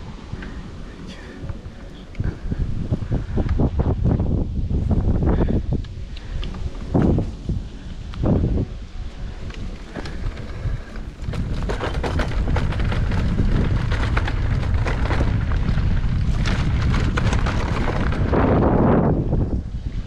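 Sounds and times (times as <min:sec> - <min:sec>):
wind buffeting microphone: 0:00.0 - 0:20.0
mountain bike rattling on rough trail: 0:09.2 - 0:20.0.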